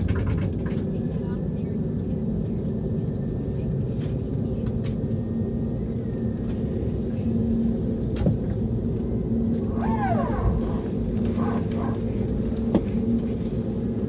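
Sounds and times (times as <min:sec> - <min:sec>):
aircraft cabin low rumble: 0:00.0 - 0:14.0.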